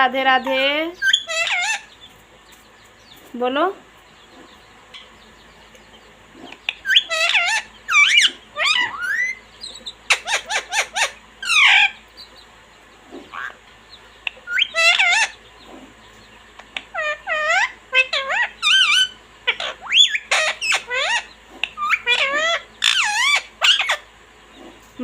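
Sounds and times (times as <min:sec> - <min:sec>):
parrot squawking: 0:00.4 - 0:02.0, 0:06.4 - 0:12.1, 0:13.2 - 0:13.6, 0:14.2 - 0:15.5, 0:16.6 - 0:24.8.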